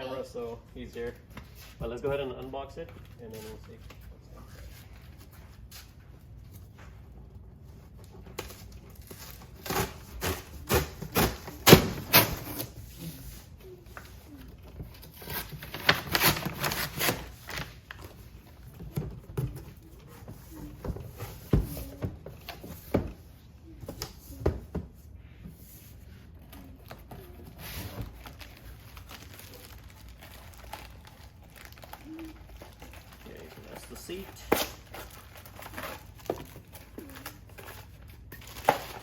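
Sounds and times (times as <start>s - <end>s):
packaging crinkling and rustling: 13.6s - 22.9s, 26.3s - 39.0s.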